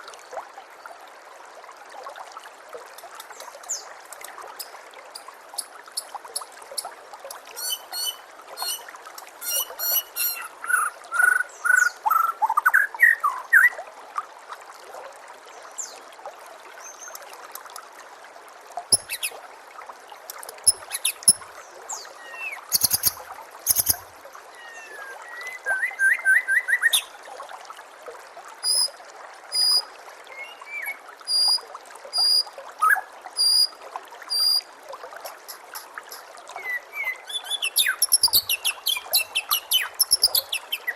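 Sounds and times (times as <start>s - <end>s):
trickle of running water: 0.0s - 40.9s
songbirds singing: 7.6s - 8.8s, 9.4s - 13.7s, 20.6s - 24.0s, 35.8s - 40.9s
high bird chips: 22.7s - 24.0s.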